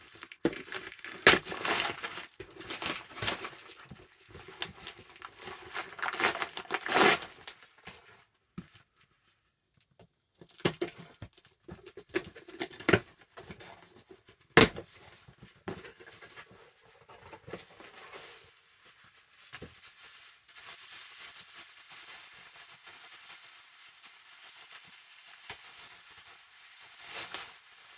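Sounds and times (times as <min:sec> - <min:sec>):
package being torn open: 0:00.0 - 0:07.9
packaging crinkling and rustling: 0:00.0 - 0:09.1, 0:10.4 - 0:27.9.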